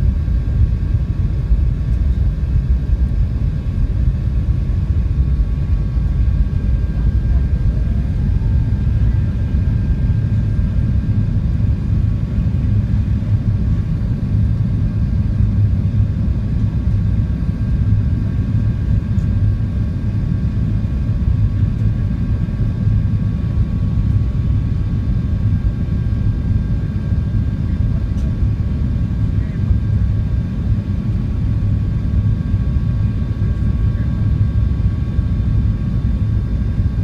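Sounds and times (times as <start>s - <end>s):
airliner cabin rumble: 0.0s - 37.0s.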